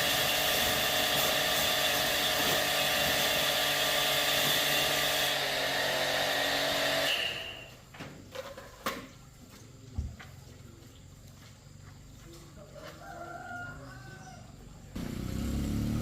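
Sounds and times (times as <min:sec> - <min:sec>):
electric power tool running: 0:00.0 - 0:07.7, 0:15.0 - 0:16.0.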